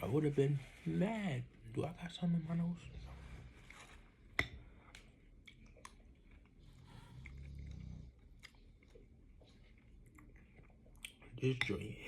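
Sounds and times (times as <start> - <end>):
person chewing close up: 4.8 - 12.0.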